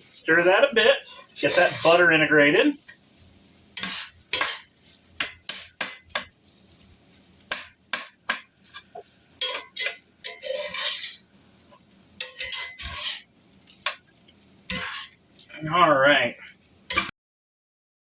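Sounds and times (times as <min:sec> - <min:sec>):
rice sizzling in pan: 0:00.0 - 0:17.1
utensil clinking and scraping pan: 0:00.7 - 0:02.3, 0:03.8 - 0:06.5, 0:07.5 - 0:15.6, 0:16.4 - 0:17.1.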